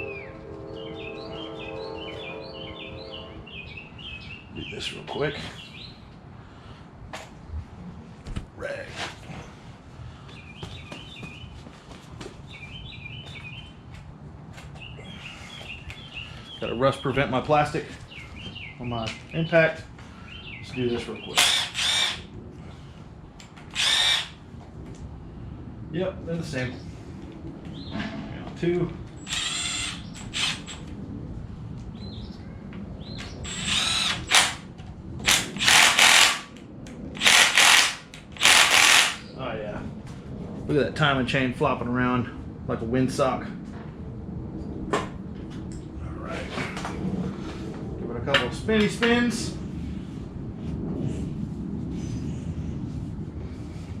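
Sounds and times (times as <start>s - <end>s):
cordless impact tool bursts: 21.3s - 22.3s, 23.7s - 24.4s, 29.2s - 30.9s, 33.4s - 36.5s, 37.2s - 39.2s
low rumble: 21.4s - 54.0s.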